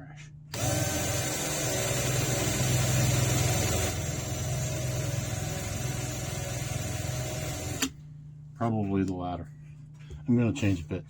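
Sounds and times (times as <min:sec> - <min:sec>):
electric drill boring into metal: 0:00.5 - 0:07.9.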